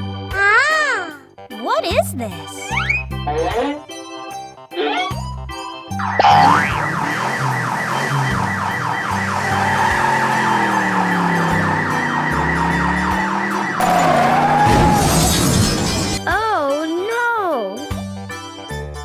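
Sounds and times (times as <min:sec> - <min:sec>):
warbling electronic siren: 0:06.0 - 0:16.2.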